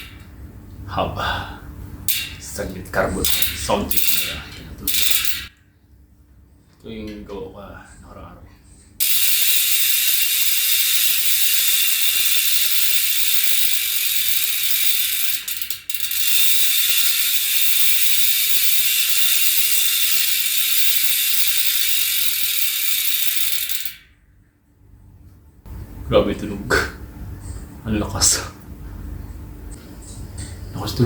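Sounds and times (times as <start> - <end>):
bicycle hub ratchet buzzing: 0.0 - 0.3, 1.9 - 5.6, 8.9 - 24.3.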